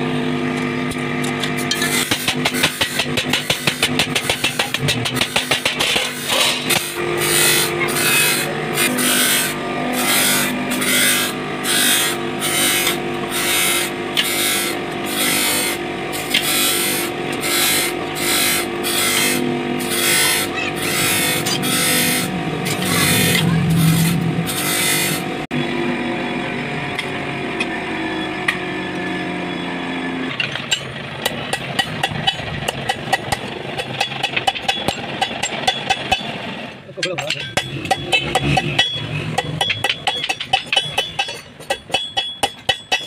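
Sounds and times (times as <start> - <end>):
steady motor hum: 0.0 - 43.0
scraping strokes on metal: 1.4 - 25.4, 37.0 - 43.0.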